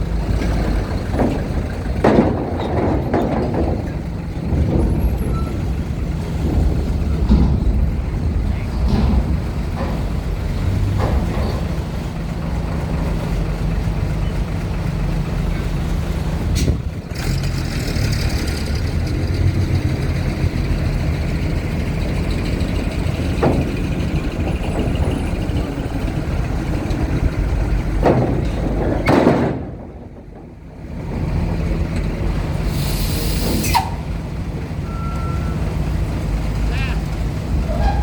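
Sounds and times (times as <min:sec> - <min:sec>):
heavy trucks diesel rumble: 0:00.0 - 0:38.0
air brake hisses: 0:32.6 - 0:34.1.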